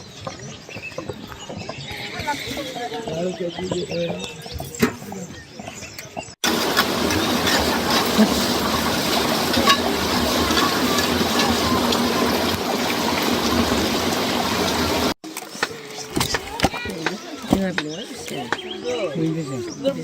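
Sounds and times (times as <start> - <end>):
heavy rain falling: 6.4 - 15.2.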